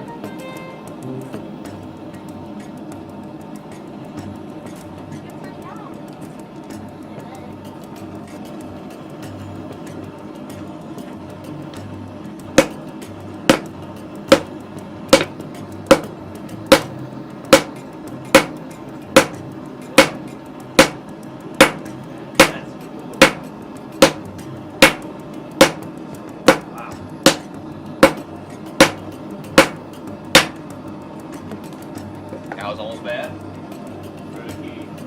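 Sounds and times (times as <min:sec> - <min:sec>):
hammer striking metal: 0:12.5 - 0:12.8, 0:13.4 - 0:16.1, 0:16.7 - 0:19.4, 0:20.0 - 0:30.6.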